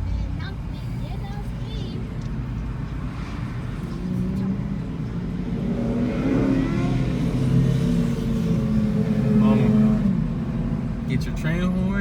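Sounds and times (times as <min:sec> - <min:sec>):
car engine revving: 0:03.3 - 0:12.0.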